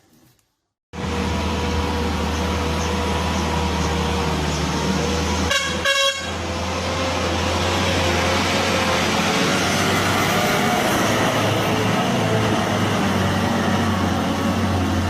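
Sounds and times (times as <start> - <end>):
truck engine running: 1.0 - 15.0
horn honks: 5.4 - 6.5.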